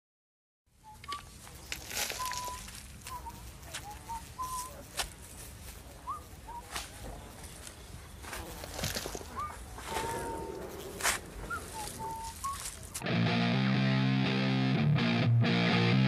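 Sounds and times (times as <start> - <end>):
birds whistling: 2.1 - 4.8, 9.2 - 12.9.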